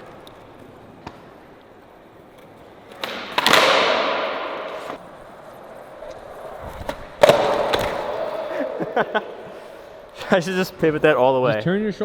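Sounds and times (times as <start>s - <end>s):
skateboard wheels rolling: 0.0s - 10.2s
skateboard slapping down: 2.4s - 5.1s, 5.9s - 9.4s
skateboard tail pop: 2.9s - 5.0s, 6.7s - 8.5s.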